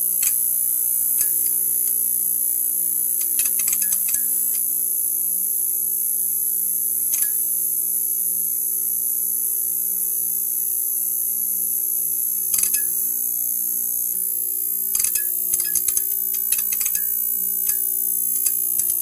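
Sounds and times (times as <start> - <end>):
neon sign buzzing: 12.2 - 19.0
sharp clicks: 12.6 - 12.9, 15.0 - 17.1.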